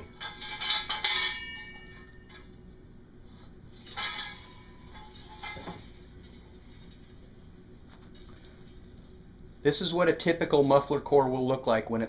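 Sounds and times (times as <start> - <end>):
metal muffler core clanking: 0.0 - 2.6, 3.7 - 7.3.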